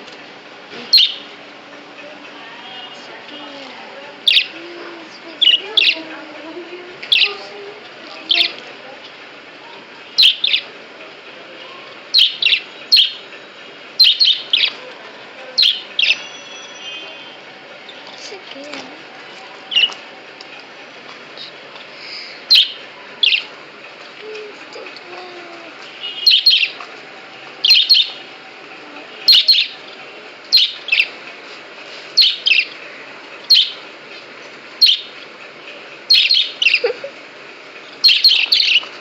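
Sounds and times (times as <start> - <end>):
budgerigar chirping: 0.9 - 1.2, 4.2 - 4.6, 5.4 - 6.1, 10.2 - 10.7, 12.1 - 13.2, 14.0 - 14.8, 15.6 - 16.4, 22.5 - 23.5, 26.1 - 26.8, 27.6 - 28.2, 29.3 - 29.8, 30.5 - 31.2, 32.2 - 32.8, 33.5 - 33.8, 34.8 - 35.2, 36.1 - 36.9, 38.0 - 38.8.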